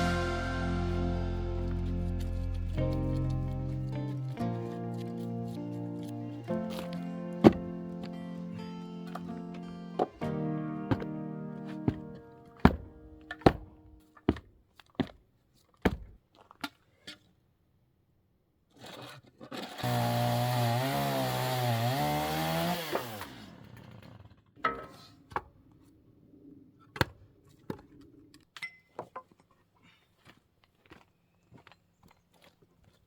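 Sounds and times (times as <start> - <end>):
chainsaw running: 19.6 - 24.3.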